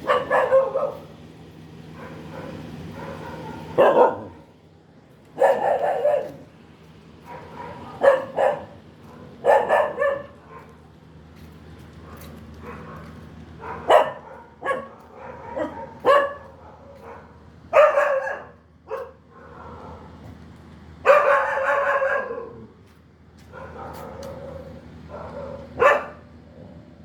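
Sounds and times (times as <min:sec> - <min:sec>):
dog barking: 0:00.0 - 0:01.1, 0:01.9 - 0:04.5, 0:05.4 - 0:06.5, 0:07.2 - 0:10.8, 0:12.0 - 0:20.2, 0:21.0 - 0:22.7, 0:23.5 - 0:26.3.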